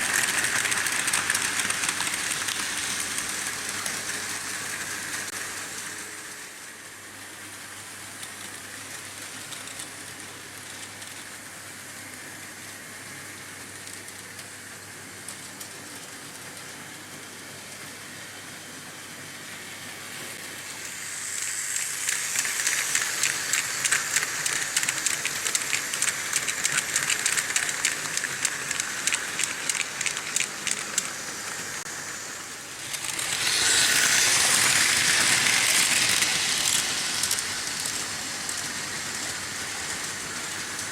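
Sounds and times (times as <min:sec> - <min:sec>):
model trains rolling rattle: 0:00.0 - 0:06.0, 0:08.1 - 0:11.7, 0:13.7 - 0:14.6, 0:15.2 - 0:16.8, 0:20.5 - 0:40.9.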